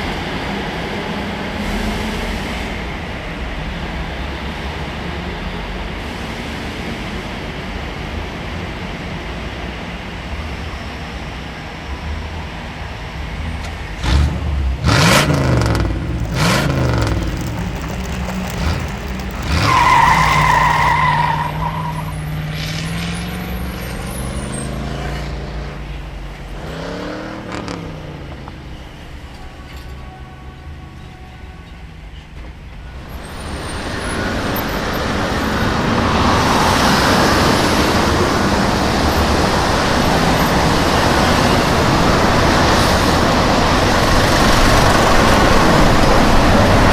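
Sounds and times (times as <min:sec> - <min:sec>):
engine low rumble: 0:11.6 - 0:20.9
engine rising and falling in pitch: 0:14.0 - 0:21.6
knocks and clatter: 0:15.7 - 0:21.0.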